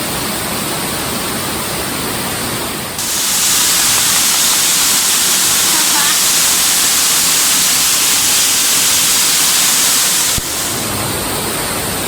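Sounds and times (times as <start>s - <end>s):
waterfall rushing: 3.0s - 11.1s.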